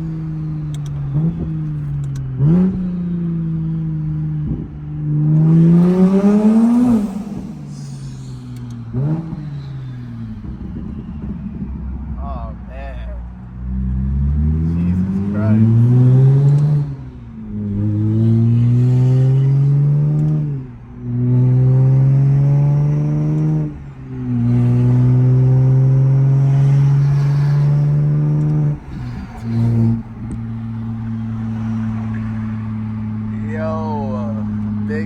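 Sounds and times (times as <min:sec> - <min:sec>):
car engine accelerating hard: 0:00.0 - 0:35.0
gear upshifts: 0:05.4 - 0:13.2, 0:23.2 - 0:35.0.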